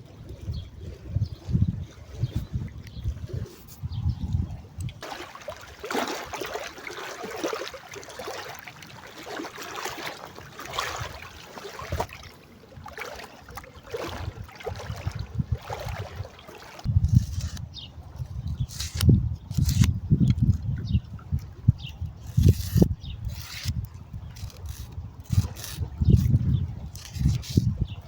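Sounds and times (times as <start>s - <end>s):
water lapping and splashing: 0.0s - 28.0s
low rumbling gusts: 0.6s - 5.0s.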